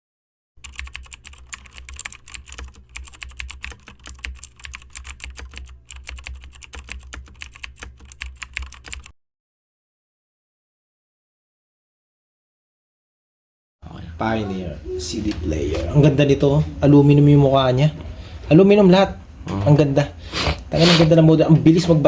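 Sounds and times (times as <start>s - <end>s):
rapid irregular clicking: 0.6s - 9.1s
low steady hum: 13.8s - 22.0s.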